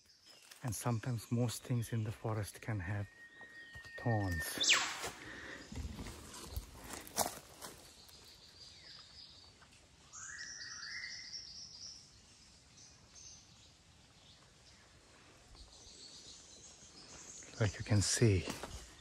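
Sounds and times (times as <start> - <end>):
rising bird call: 3.1 - 6.0.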